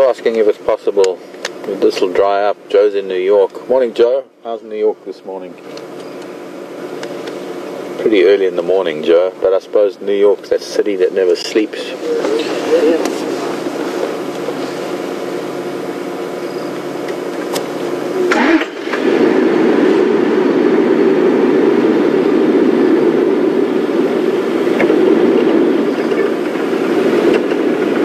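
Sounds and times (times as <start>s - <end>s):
vehicle engine running: 10.0s - 28.0s.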